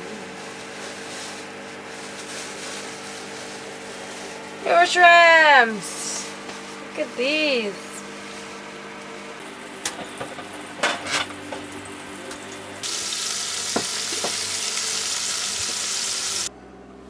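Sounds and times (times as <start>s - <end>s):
shrimp sizzling in a pan: 9.4s - 16.5s.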